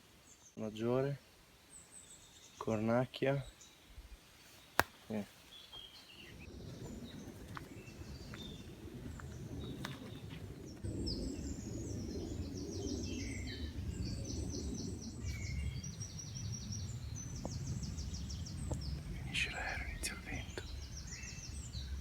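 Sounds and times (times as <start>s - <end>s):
songbirds chirping and trilling: 0.0s - 22.0s
airplane rumbling overhead: 6.4s - 22.0s.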